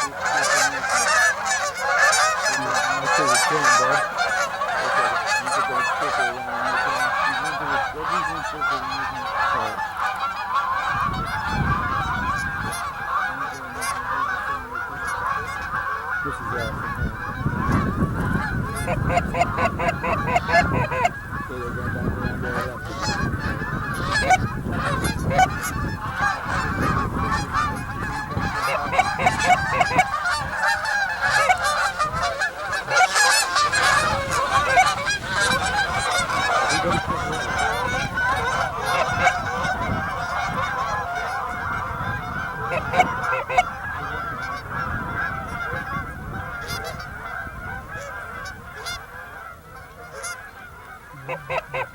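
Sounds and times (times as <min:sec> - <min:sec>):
geese honking: 0:00.0 - 0:51.9.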